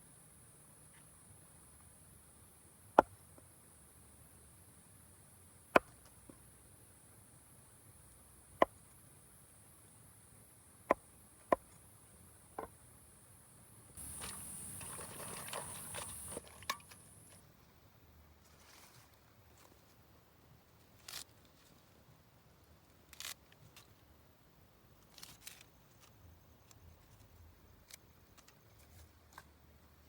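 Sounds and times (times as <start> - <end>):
steady high hiss: 6.4 - 18.8
rustling and scraping: 14.0 - 17.4, 18.4 - 20.0, 20.8 - 22.1, 25.1 - 26.2, 28.4 - 29.6.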